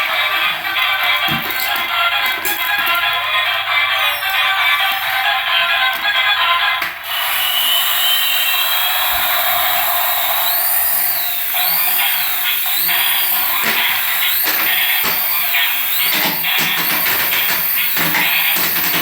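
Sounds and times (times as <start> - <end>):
toy electric motor whirring: 0.0 - 19.0
sweeping high tone: 3.8 - 5.3.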